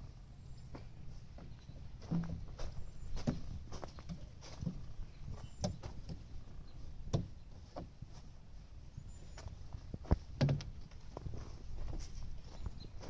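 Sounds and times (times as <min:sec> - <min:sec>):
irregular knocks and thumps: 0:07.0 - 0:08.0.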